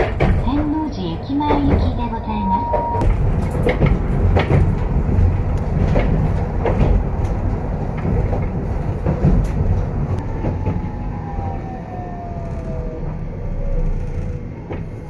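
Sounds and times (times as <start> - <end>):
wheel clacks: 0.0 - 10.9
streetcar rumbling: 0.0 - 15.0
motor whine: 11.0 - 15.0.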